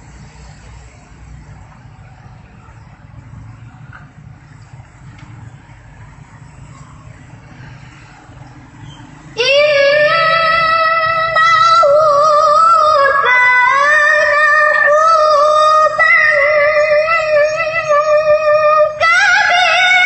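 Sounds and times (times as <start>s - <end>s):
person chanting melodically: 9.3s - 20.0s.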